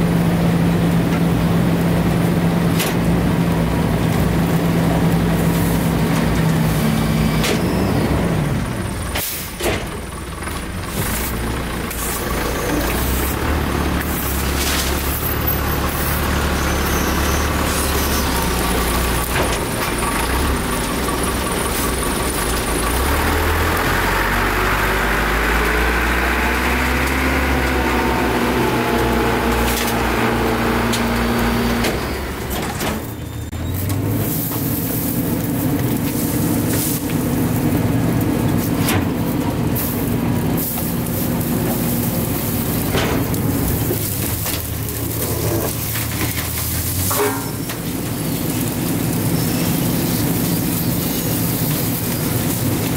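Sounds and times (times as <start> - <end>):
garbage truck engine running: 0.0 - 52.9
packer compacting waste: 1.0 - 52.9.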